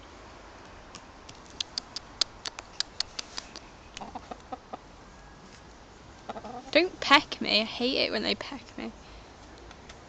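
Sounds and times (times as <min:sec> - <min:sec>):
short sharp ticks: 0:01.3 - 0:04.1
chickens clucking: 0:02.8 - 0:04.9, 0:06.2 - 0:06.8.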